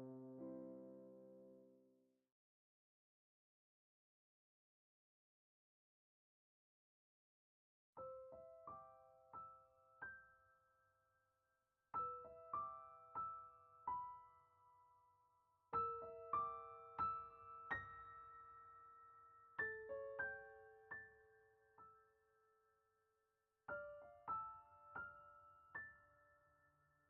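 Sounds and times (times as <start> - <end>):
soft slow piano music: 0.0 - 2.0, 8.0 - 11.2, 11.9 - 22.8, 23.7 - 27.0.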